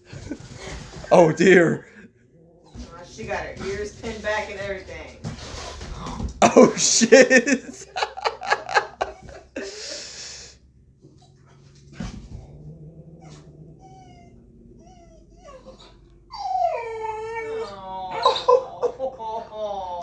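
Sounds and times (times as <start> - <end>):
puppy whining: 11.0 - 18.9
thump: 12.0 - 12.5.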